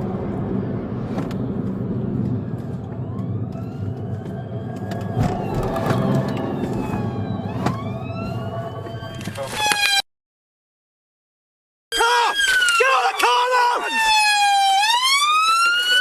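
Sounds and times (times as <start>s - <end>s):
car engine and road noise: 0.0s - 10.0s
siren wailing: 1.5s - 10.0s, 11.9s - 16.0s.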